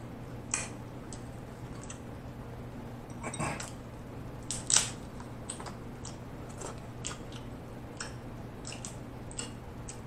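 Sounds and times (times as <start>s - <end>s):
mouth clicks and smacks chewing: 7.0s - 10.0s.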